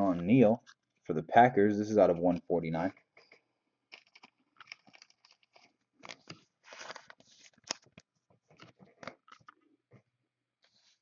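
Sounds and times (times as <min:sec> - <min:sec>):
cards rustling and clicking: 0:02.2 - 0:09.7.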